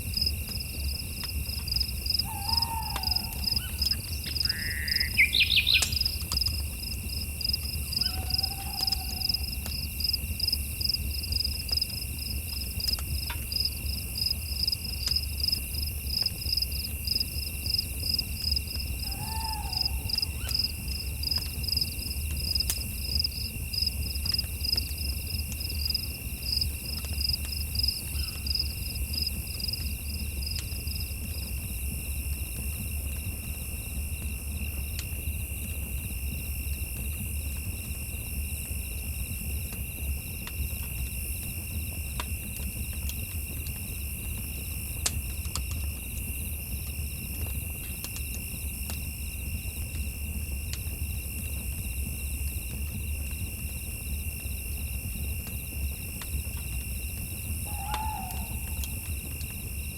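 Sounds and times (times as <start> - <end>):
insects chirping rapidly: 1.7 - 6.5, 16.2 - 23.9, 57.4 - 59.3
short lower animal call: 19.1 - 20.4, 57.6 - 59.0.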